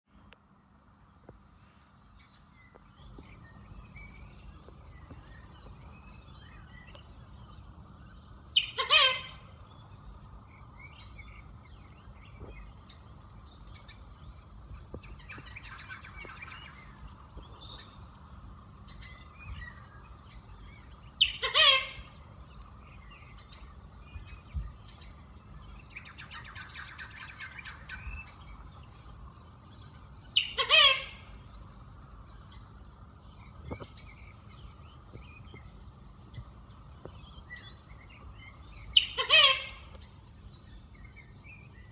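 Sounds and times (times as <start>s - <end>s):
steady background hum: 0.1s - 41.9s.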